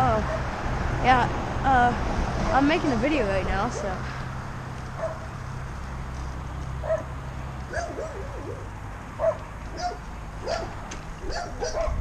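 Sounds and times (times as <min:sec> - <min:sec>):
yip-like animal calls: 0:07.7 - 0:12.0.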